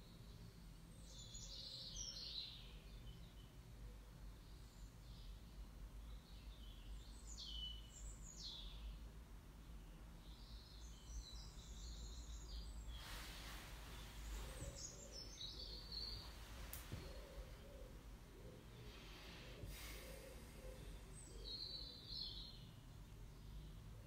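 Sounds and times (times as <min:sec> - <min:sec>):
faint bird song: 0:00.0 - 0:24.0
low steady hum: 0:00.0 - 0:24.0
soft hiss of noise: 0:00.0 - 0:24.0.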